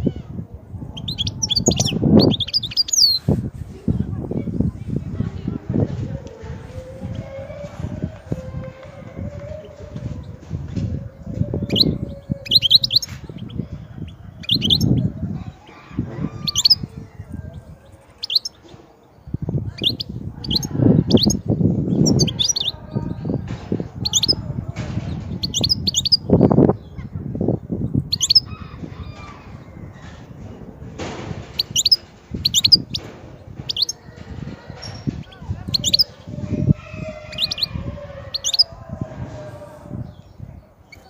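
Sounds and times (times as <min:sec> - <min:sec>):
goldfinch twittering: 0:31.6 - 0:33.0.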